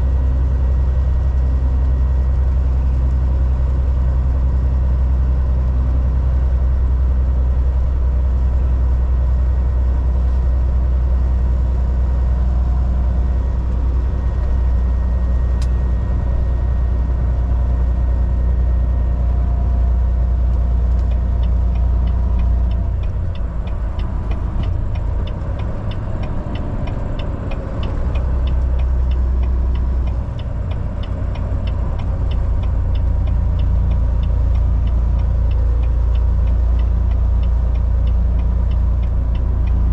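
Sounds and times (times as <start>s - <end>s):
truck engine and road drone: 0.0s - 39.9s
rapid regular ticking: 20.9s - 39.9s.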